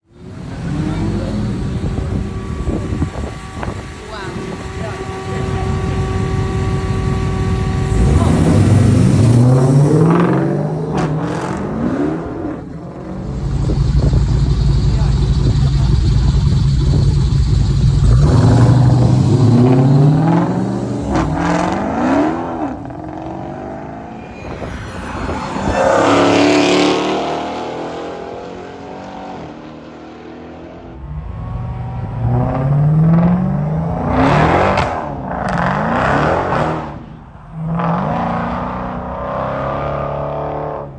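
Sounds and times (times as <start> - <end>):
loud car exhaust accelerating: 0.4 - 29.0.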